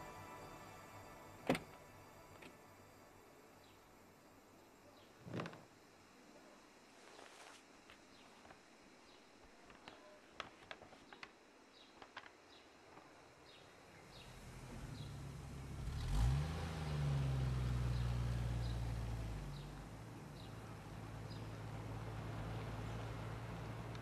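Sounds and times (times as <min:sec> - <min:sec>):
faint bird chirps: 0:02.3 - 0:07.3, 0:08.1 - 0:10.4, 0:11.0 - 0:15.3, 0:17.8 - 0:23.7
car engine revving: 0:14.0 - 0:24.0.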